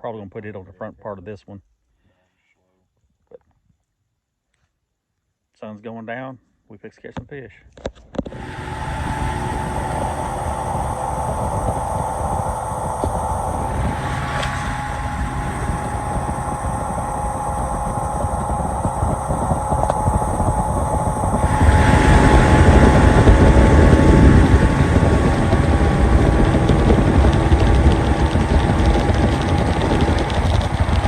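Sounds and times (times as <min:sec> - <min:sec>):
outboard motor running: 0:08.3 - 0:31.0.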